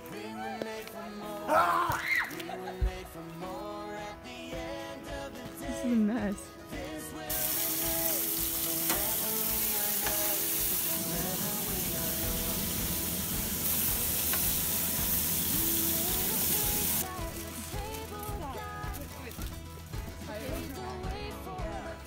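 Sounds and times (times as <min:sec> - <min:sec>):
food sizzling in a pan: 0:07.3 - 0:18.1.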